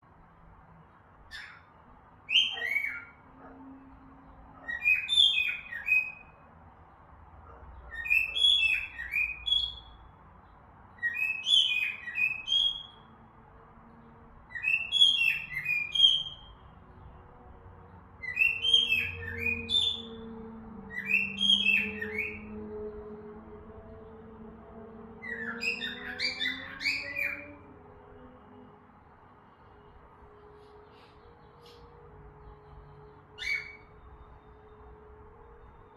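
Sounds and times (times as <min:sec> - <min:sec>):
cockatiel whistling and chirping: 0:02.3 - 0:03.2, 0:04.6 - 0:06.4, 0:07.9 - 0:10.0, 0:11.0 - 0:13.0, 0:14.5 - 0:16.6, 0:18.2 - 0:20.1, 0:20.9 - 0:22.5, 0:25.2 - 0:27.5, 0:33.4 - 0:33.9.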